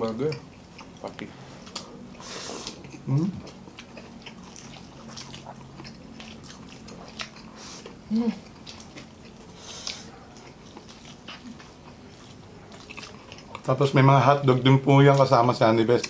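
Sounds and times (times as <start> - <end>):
people chewing crunchy fries: 0.0 - 16.0.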